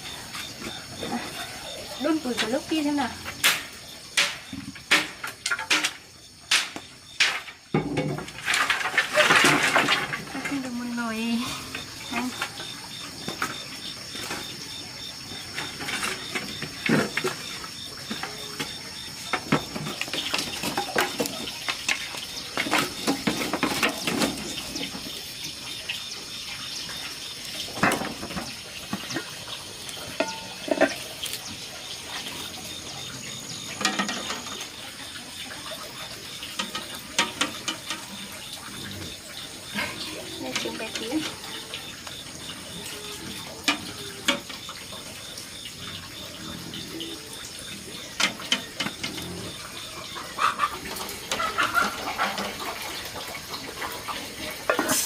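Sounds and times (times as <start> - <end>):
kitchen things knocking and clinking: 3.3 - 10.6, 18.1 - 25.0, 27.7 - 29.3, 30.1 - 31.3, 33.8 - 34.7, 36.5 - 38.0.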